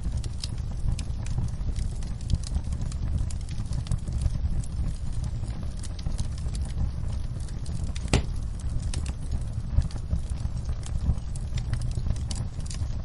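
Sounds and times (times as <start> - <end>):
wood fire crackling: 0.0 - 13.0
sharp pop from fire: 8.0 - 9.1.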